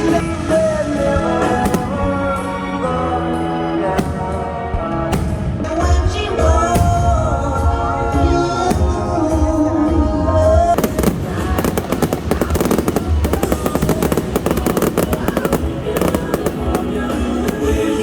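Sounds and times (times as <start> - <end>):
fireworks bangs and crackles: 0.0 - 18.0
loud show music: 0.0 - 18.0.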